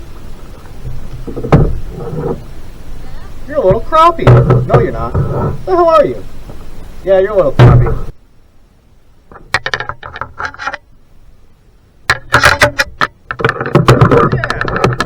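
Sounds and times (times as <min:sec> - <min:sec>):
rapid clicking and clattering: 0:12.1 - 0:15.0.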